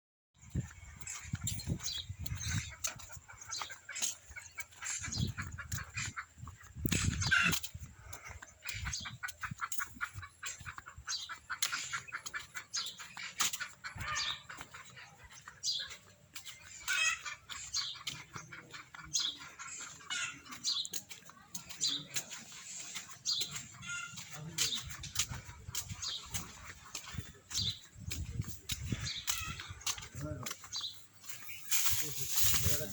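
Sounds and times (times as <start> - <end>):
birds chirping and calling: 0.4 - 32.9.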